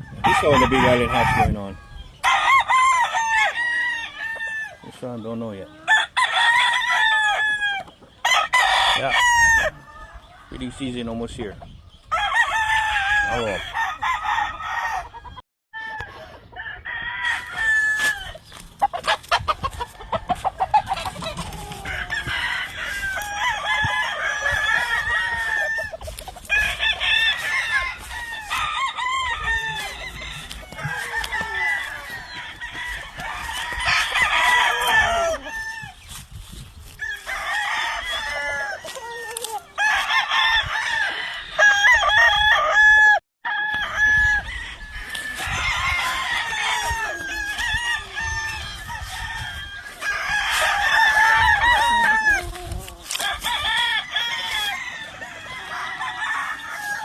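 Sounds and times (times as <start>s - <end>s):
chickens clucking: 0.0s - 2.3s, 4.4s - 6.0s, 7.8s - 8.3s, 9.0s - 12.1s, 17.4s - 37.4s, 38.2s - 40.0s, 44.8s - 57.0s
roosters crowing: 0.0s - 57.0s.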